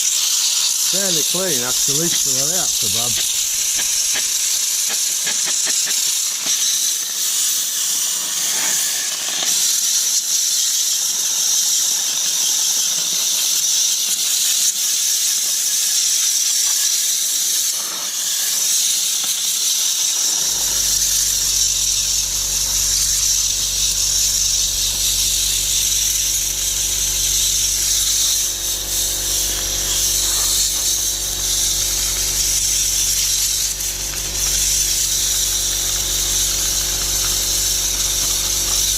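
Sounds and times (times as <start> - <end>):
air blow gun hissing: 0.0 - 9.8, 20.1 - 38.9
low steady hum: 20.4 - 38.9.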